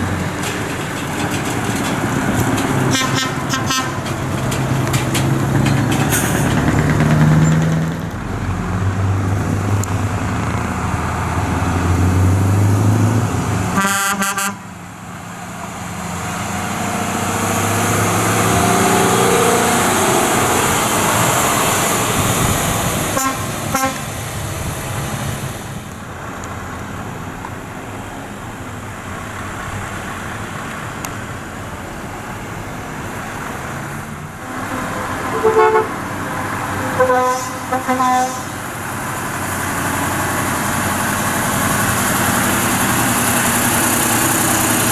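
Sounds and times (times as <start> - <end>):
lorry diesel engines running: 0.0 - 44.9
rising engine whines: 16.0 - 22.9, 34.4 - 37.0.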